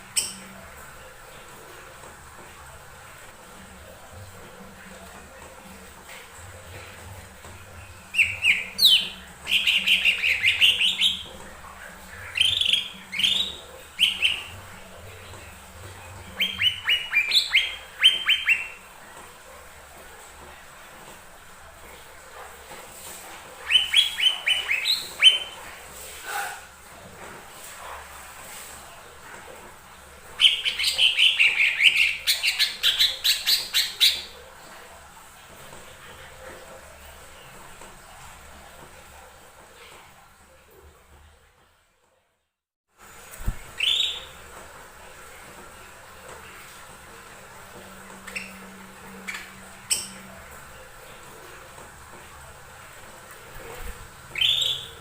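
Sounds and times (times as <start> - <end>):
bird chirping rapidly: 8.2 - 11.3, 12.3 - 14.5, 16.4 - 18.8, 23.7 - 25.6, 43.8 - 44.3, 54.4 - 55.0.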